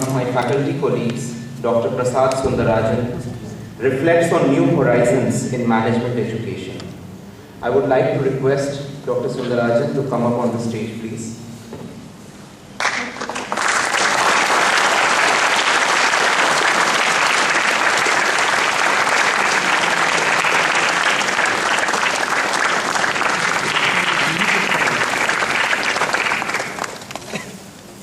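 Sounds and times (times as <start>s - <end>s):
audience applauding: 12.8s - 27.6s.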